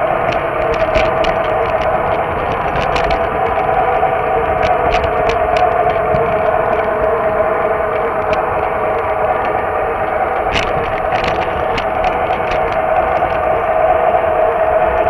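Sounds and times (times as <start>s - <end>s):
model train motor whine: 0.0s - 15.0s
wheel rumble: 0.0s - 15.0s
sharp clicks: 0.2s - 7.1s.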